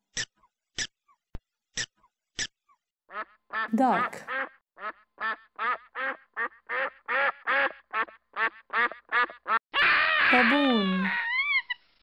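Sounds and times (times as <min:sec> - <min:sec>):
ducks quacking: 0:03.1 - 0:11.2.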